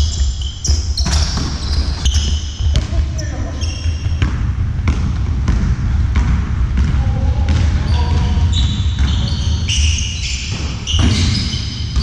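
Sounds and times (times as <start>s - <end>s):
shoes squeaking on floor: 0.0s - 4.2s, 7.8s - 12.0s
ball bouncing on court floor: 0.0s - 12.0s.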